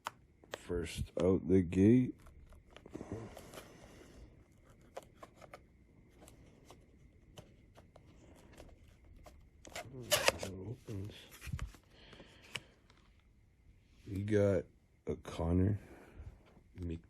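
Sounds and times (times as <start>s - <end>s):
cardboard rustling: 2.2s - 12.6s.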